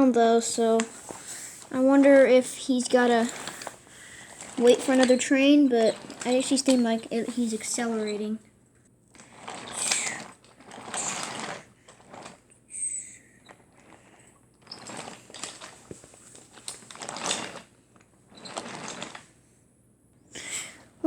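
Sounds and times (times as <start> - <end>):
toy train rolling over wooden track: 0.4 - 8.3, 9.2 - 12.4, 14.7 - 17.7, 18.4 - 19.2
brief squeak: 12.8 - 13.2.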